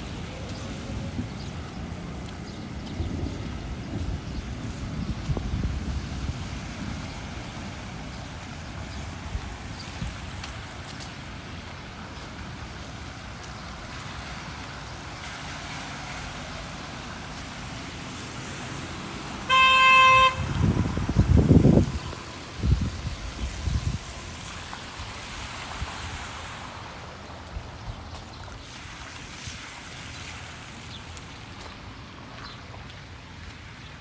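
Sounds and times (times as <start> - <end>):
steady rain: 0.0 - 27.8
street noise: 0.0 - 34.0
vehicle horn toot: 19.4 - 21.0.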